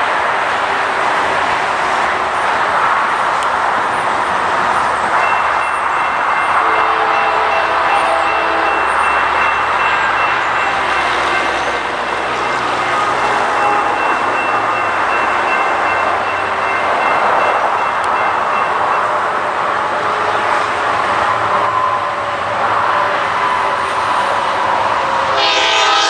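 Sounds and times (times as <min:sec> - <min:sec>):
freight train rumble: 0:00.0 - 0:26.0
thin high tone: 0:25.2 - 0:26.0.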